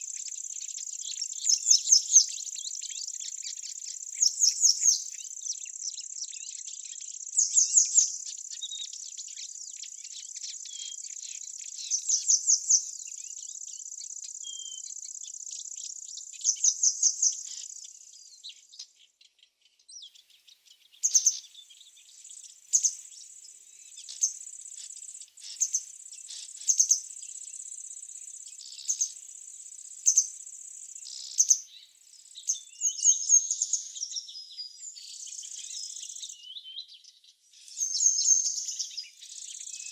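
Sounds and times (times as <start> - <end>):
insects trilling: 0.0 - 18.2, 21.0 - 33.8
insect chirps: 0.0 - 39.9.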